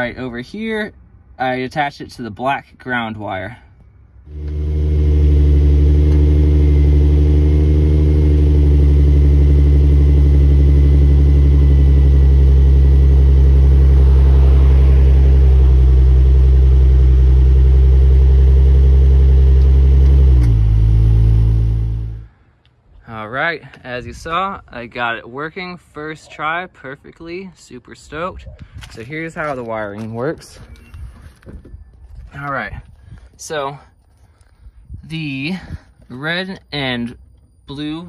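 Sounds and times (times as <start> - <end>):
car engine idling: 4.3 - 22.4.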